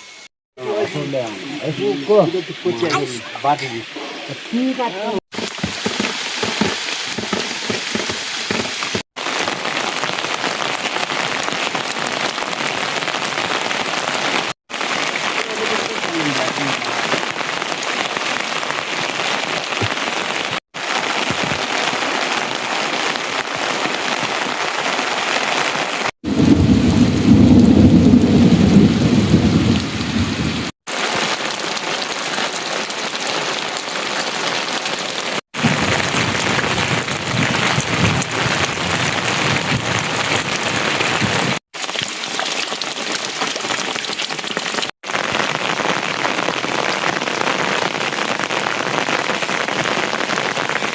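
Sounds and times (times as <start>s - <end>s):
steady rain: 0.6s - 50.9s
deep thunder rumble: 26.3s - 30.7s, 35.6s - 41.6s.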